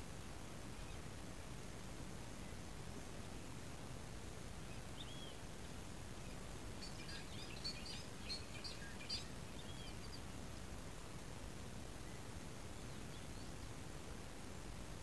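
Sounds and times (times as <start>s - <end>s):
outdoor background noise: 0.0s - 15.0s
bird high chirps: 6.8s - 10.2s.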